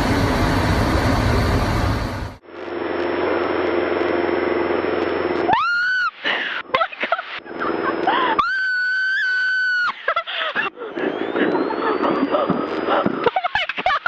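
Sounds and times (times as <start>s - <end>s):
high-pitched screams: 5.5s - 6.2s, 8.4s - 10.0s.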